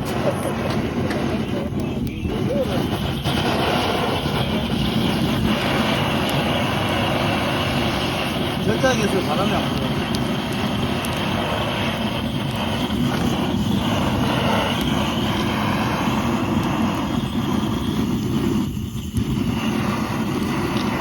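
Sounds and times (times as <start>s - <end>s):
gas torch flame rushing: 0.0s - 21.0s.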